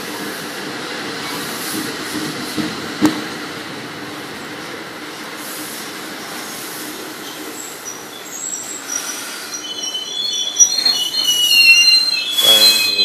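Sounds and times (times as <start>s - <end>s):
train rumbling past: 0.0s - 13.0s
metallic wheel and brake squeals: 7.2s - 13.0s.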